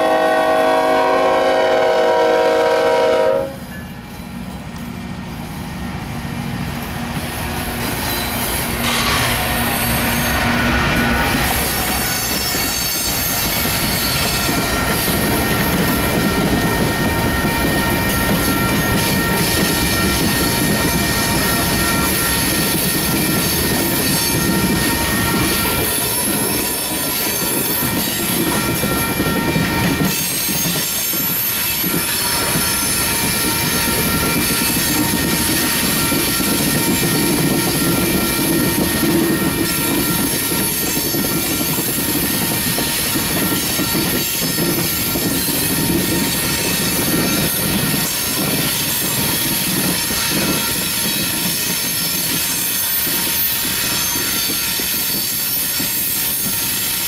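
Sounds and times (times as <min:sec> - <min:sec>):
train wheels rumbling on rail: 0:00.0 - 0:57.0
high-pitched wheel squeal: 0:11.5 - 0:57.0.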